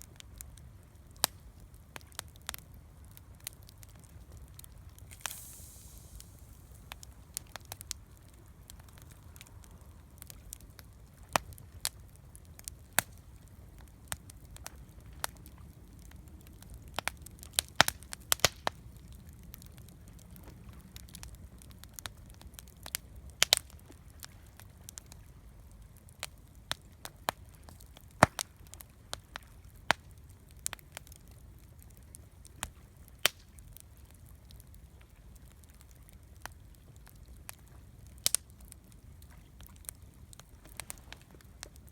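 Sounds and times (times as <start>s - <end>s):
campfire crackling and popping: 0.0s - 41.9s
faint low rumble: 0.1s - 23.4s.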